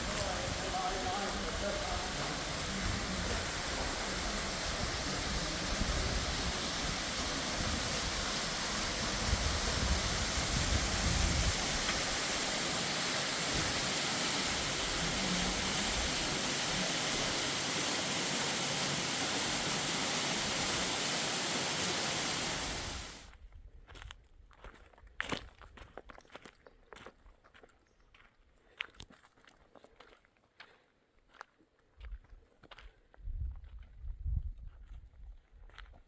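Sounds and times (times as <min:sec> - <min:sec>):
river water rushing: 0:00.0 - 0:23.2.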